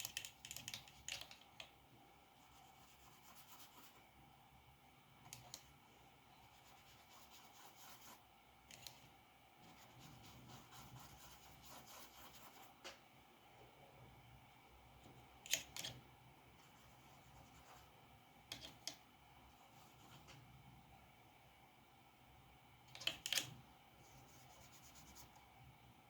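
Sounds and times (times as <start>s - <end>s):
drawing tool scratching paper: 9.6s - 12.8s.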